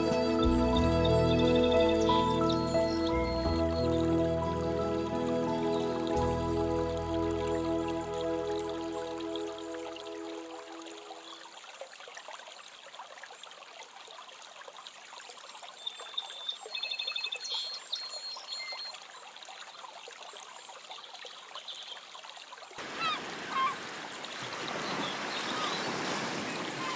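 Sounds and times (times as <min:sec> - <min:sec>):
rush of water: 0:01.7 - 0:26.9
water trickling and lapping: 0:01.7 - 0:26.9.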